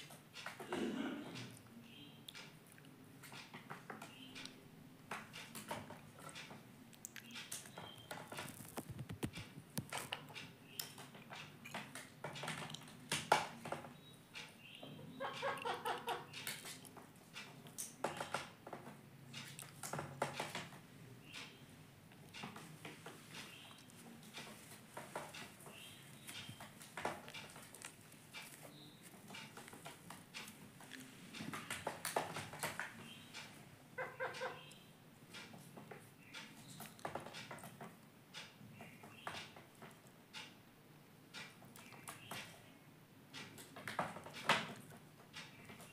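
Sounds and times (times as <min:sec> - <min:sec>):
parrot clicking and tapping: 0:03.2 - 0:14.5, 0:15.2 - 0:21.6, 0:22.3 - 0:40.6, 0:43.3 - 0:45.9.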